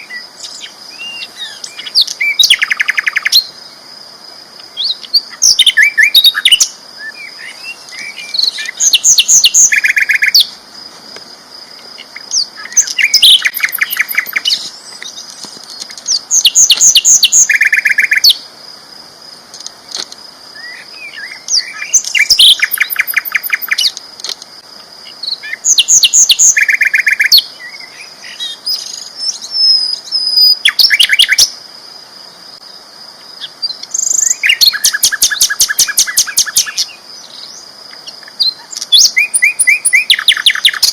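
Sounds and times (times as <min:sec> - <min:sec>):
bird singing trilled notes: 0:12.0 - 0:18.4, 0:20.6 - 0:24.0.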